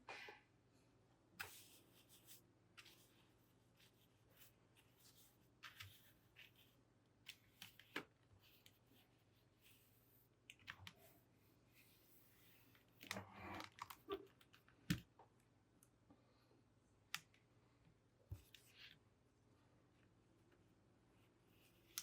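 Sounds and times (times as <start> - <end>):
keyboard clicks and rustles: 12.8 - 15.2.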